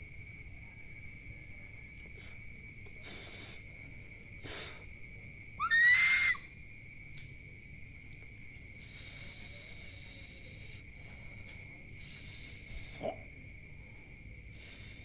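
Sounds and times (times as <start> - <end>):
insects trilling: 0.0 - 15.0
owl hissing calls: 5.6 - 6.5
owl screeching: 5.6 - 6.6.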